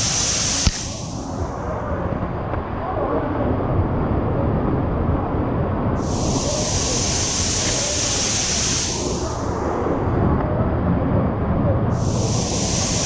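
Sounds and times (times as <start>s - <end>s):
waterfall rushing: 0.0s - 1.2s, 6.0s - 9.6s, 12.0s - 13.0s
high hiss: 0.0s - 1.7s, 6.0s - 9.9s, 11.9s - 13.0s.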